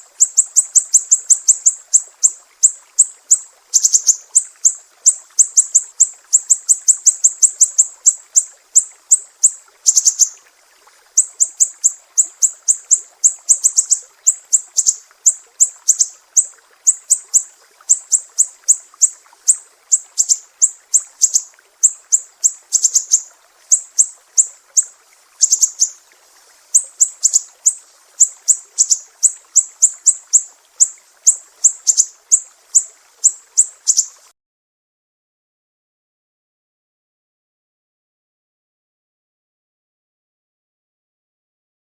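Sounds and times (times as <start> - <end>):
bird chirping: 0.2 - 10.4, 11.2 - 26.0, 26.8 - 34.2.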